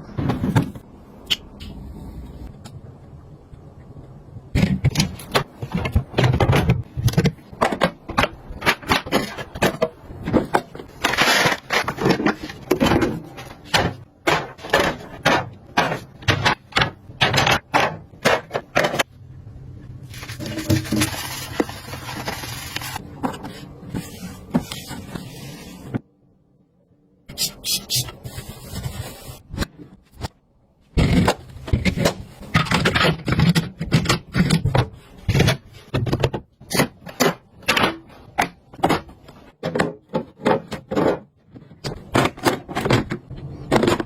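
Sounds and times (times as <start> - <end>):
rustling scrape: 10.9 - 13.7, 20.1 - 26.0.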